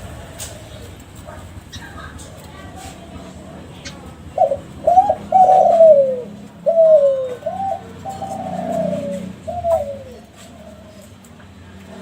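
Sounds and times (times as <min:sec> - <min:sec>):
dove cooing: 0:01.6 - 0:11.2.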